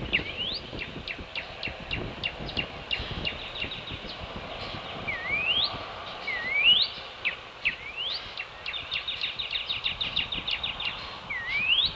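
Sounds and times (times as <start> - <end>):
bird rapid trill: 0.0 - 11.9
steady background hiss: 0.0 - 11.9
bird rising whistles: 6.3 - 7.0, 9.2 - 11.9.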